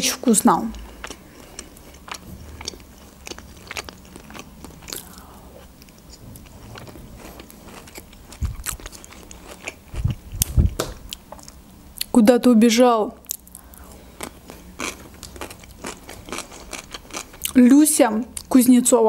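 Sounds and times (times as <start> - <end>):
person biting and chewing food: 0.8 - 12.1, 13.2 - 17.6
low thumps: 8.3 - 8.9, 9.9 - 11.2.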